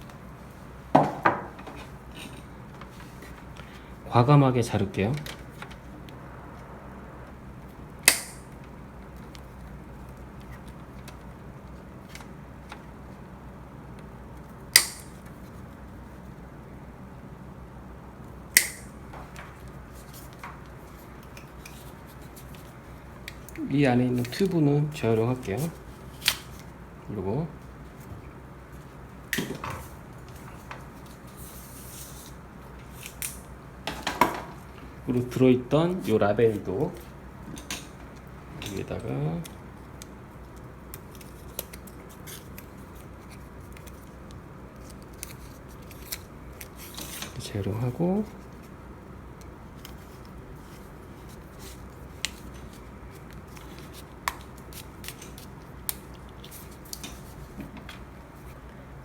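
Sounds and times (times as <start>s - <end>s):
low room noise: 0.0s - 59.0s
low steady hum: 0.0s - 59.0s
plastic parts and cable rustling: 28.0s - 58.8s.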